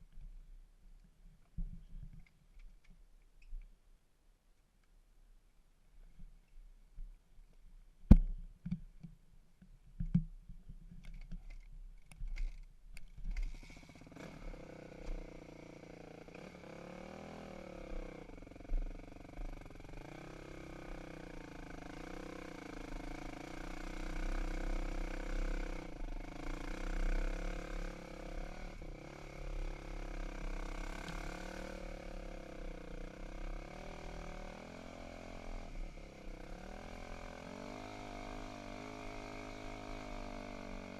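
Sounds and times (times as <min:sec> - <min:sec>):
dirt bike engine running: 0:13.6 - 0:40.9.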